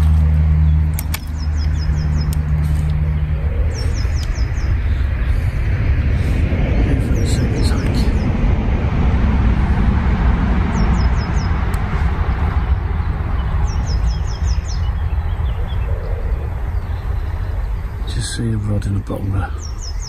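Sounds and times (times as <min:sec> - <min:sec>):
bird chirping: 0:00.0 - 0:05.6, 0:06.9 - 0:08.4, 0:10.7 - 0:11.8, 0:12.6 - 0:20.0
low rumble: 0:00.0 - 0:20.0.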